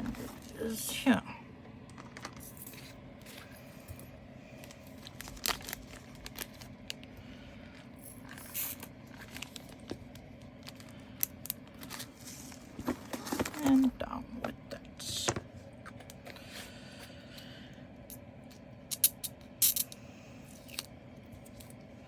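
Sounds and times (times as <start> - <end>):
plastic film crinkle: 4.6 - 7.2, 8.4 - 13.8.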